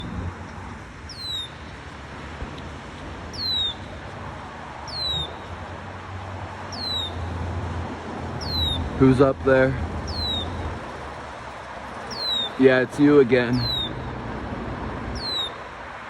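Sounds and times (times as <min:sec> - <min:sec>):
bird whistling: 0:01.1 - 0:01.6, 0:03.3 - 0:03.9, 0:04.9 - 0:05.5, 0:06.7 - 0:07.3, 0:08.4 - 0:08.9, 0:10.1 - 0:10.6, 0:12.1 - 0:12.6, 0:13.5 - 0:14.1, 0:15.2 - 0:15.6.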